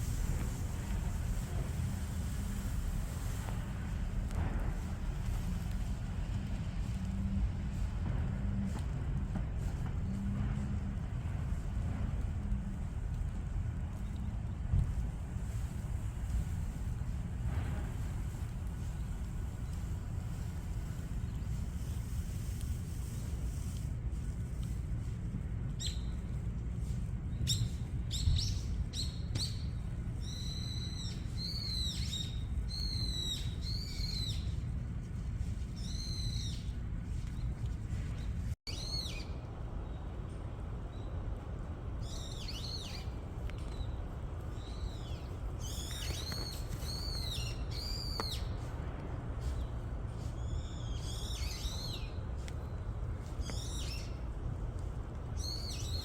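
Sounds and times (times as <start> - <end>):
steady low rumble: 0.0 - 56.0
small birds chirping: 42.0 - 48.7, 49.4 - 54.3, 55.3 - 56.0.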